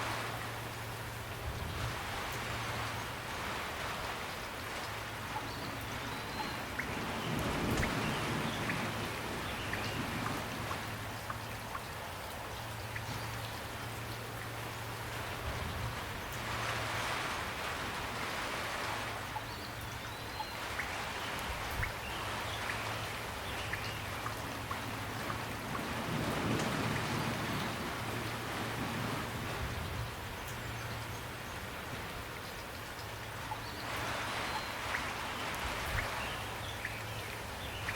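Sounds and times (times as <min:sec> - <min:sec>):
raindrops ticking on surfaces: 0:00.0 - 0:37.9
steady rainfall: 0:00.0 - 0:37.9.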